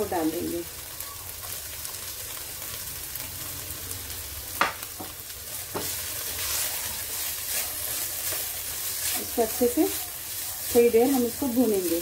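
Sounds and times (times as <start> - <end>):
chicken sizzling in oil: 0.0 - 12.0
sharp knocks against pan: 4.6 - 5.1
spatula stirring in pan: 5.0 - 12.0.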